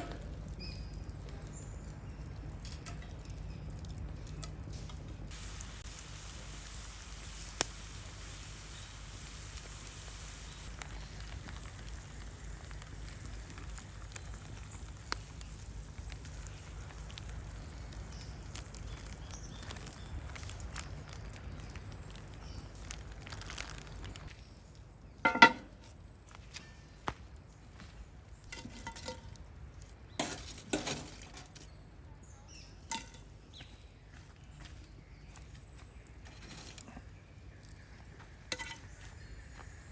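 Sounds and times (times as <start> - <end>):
campfire crackling and popping: 0.0 - 26.3
metal cookware clinking: 38.5 - 38.8.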